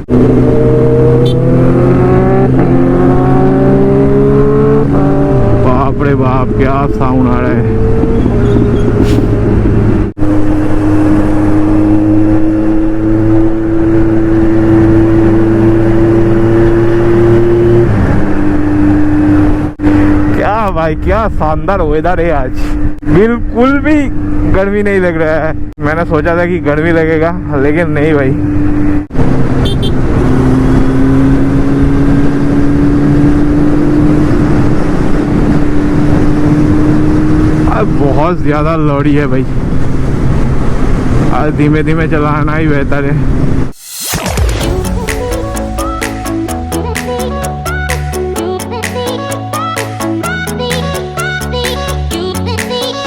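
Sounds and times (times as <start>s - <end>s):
motorcycle engine cruising: 0.0s - 21.5s, 22.1s - 53.0s
wind and road rush: 0.0s - 50.4s
motorcycle engine running: 5.1s - 16.3s.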